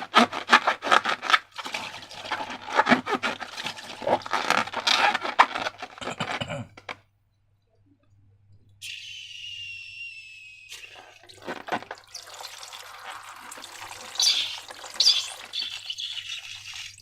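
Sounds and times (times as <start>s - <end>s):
slime crackling and squelching: 0.0s - 6.3s.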